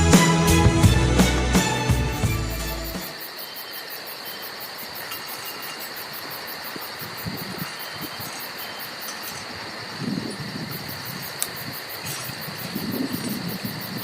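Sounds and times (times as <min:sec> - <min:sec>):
background music: 0:00.0 - 0:03.2
insect chorus pulsing: 0:03.0 - 0:14.0.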